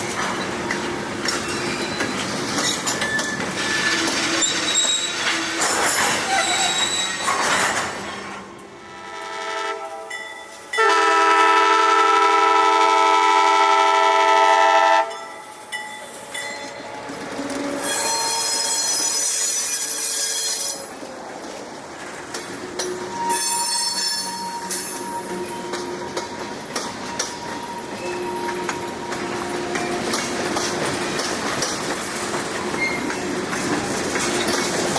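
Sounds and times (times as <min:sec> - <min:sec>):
train wheels squealing on rail: 0:00.0 - 0:08.3, 0:15.7 - 0:21.0, 0:22.8 - 0:34.9
locomotive air horn blast: 0:08.8 - 0:10.1, 0:10.8 - 0:15.1.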